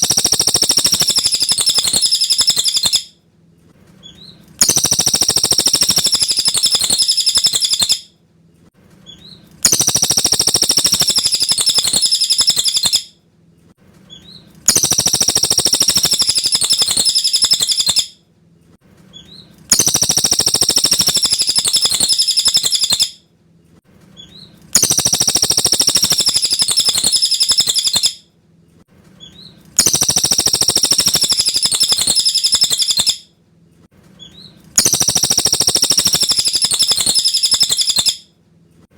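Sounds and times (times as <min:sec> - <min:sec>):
bird singing chattering phrase: 0:00.0 - 0:03.0, 0:04.6 - 0:08.0, 0:09.6 - 0:13.1, 0:14.7 - 0:18.1, 0:19.2 - 0:23.1, 0:24.8 - 0:28.2, 0:29.4 - 0:33.2, 0:34.3 - 0:38.2.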